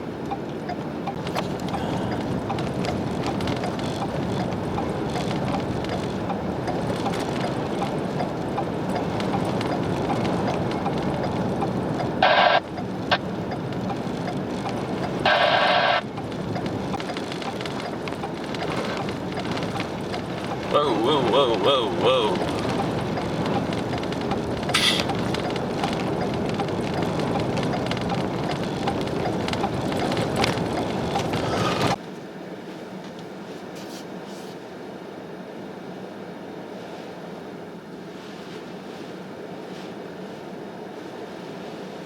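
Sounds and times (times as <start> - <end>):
vehicle driving: 0.0 - 32.1
blizzard wind: 0.0 - 42.0.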